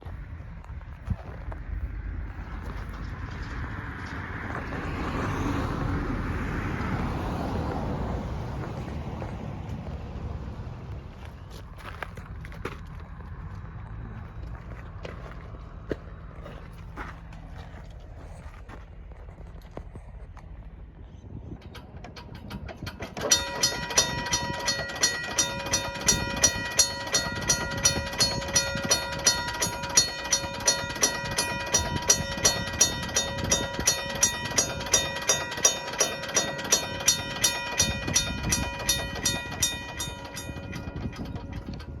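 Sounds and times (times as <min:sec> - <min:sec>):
railroad crossing bell ringing: 0:22.1 - 0:42.0.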